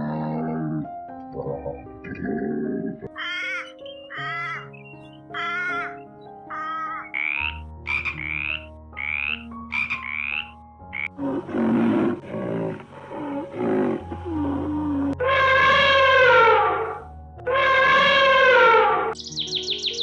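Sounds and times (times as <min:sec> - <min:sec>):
soft background music: 0:00.0 - 0:20.0
rising cawing calls: 0:03.1 - 0:11.1
deep rough frog croaks: 0:07.1 - 0:14.3.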